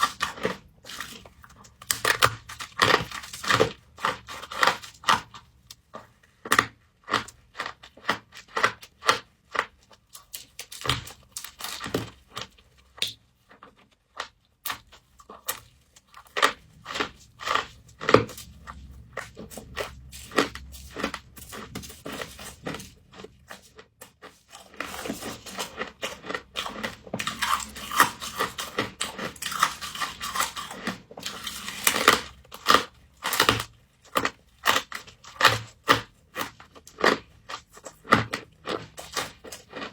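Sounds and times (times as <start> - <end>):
frost crunching as chewed: 0.0 - 39.9.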